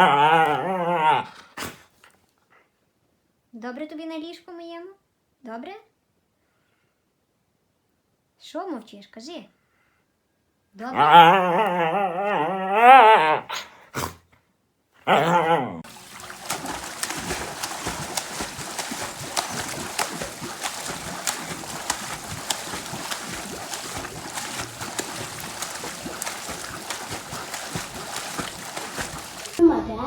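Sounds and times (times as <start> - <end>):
dog howling: 0.0 - 1.4, 10.9 - 13.5, 15.1 - 15.9, 16.6 - 29.6
dog calling: 15.1 - 29.6.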